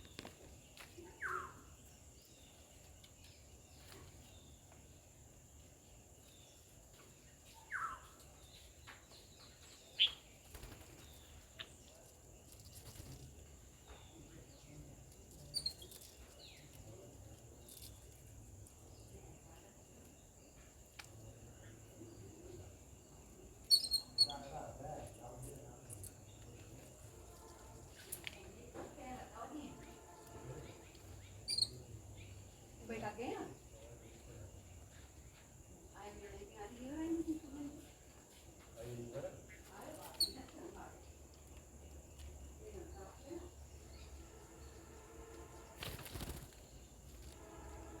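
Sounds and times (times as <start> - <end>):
bird chirps: 0.0 - 4.7, 6.2 - 12.0, 15.4 - 17.0, 21.6 - 25.4, 29.5 - 35.4, 39.3 - 41.2
insect whine: 26.0 - 34.4, 38.8 - 48.0.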